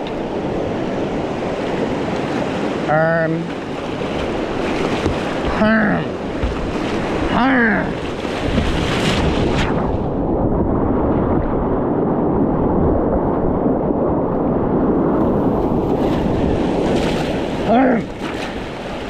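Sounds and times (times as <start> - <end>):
creek water rushing: 0.0 - 9.8
wind on microphone: 0.0 - 19.0.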